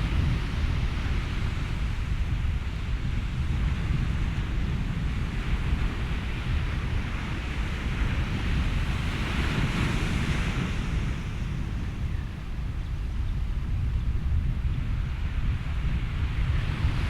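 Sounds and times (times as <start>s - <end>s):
ocean surf: 0.0s - 13.2s
wind: 0.0s - 17.0s.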